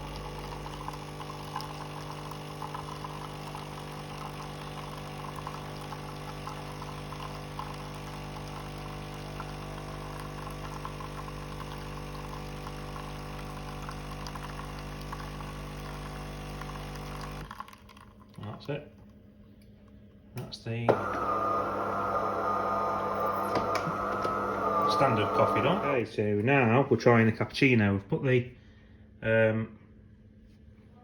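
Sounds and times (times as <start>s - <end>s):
coffee machine pump humming: 0.0s - 19.1s, 20.7s - 26.1s
coffee running into cup: 0.0s - 19.2s, 20.9s - 26.1s.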